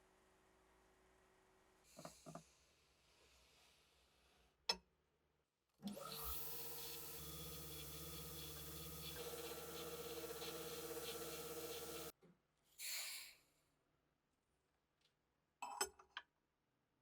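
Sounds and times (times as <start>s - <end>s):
mechanical running sound: 6.6s - 12.1s.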